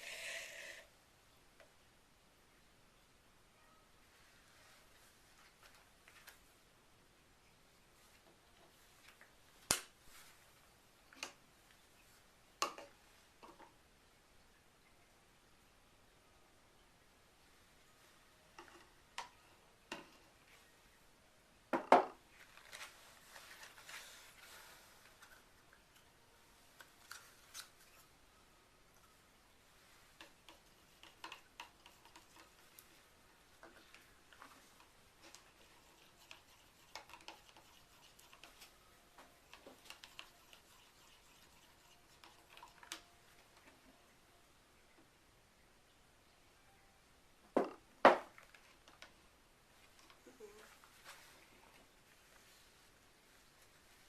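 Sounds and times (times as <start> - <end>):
soft rustling: 8.0 - 10.7, 22.3 - 25.6, 49.7 - 54.0.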